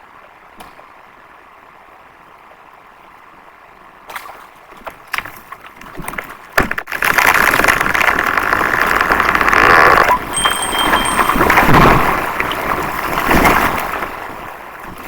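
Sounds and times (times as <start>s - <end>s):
wood cracking and snapping: 5.1s - 10.3s
branches and leaves crashing: 6.0s - 14.6s.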